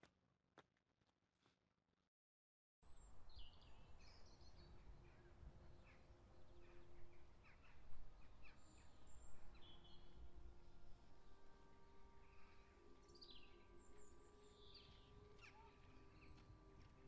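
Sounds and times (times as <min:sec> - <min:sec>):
birds chirping and calling: 0:13.2 - 0:16.4.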